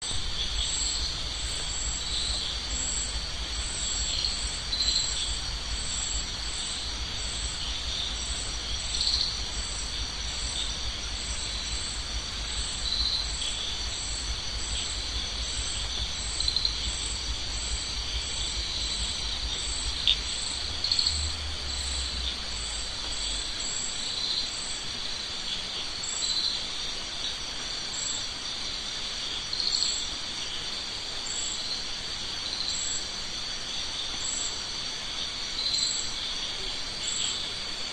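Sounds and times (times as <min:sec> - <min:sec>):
crickets chirping: 0:00.0 - 0:37.9
low rumble: 0:00.1 - 0:23.6.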